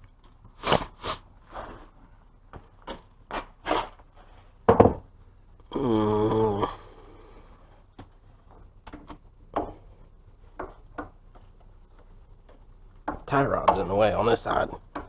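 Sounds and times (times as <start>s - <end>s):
pitched groan: 5.7s - 7.1s.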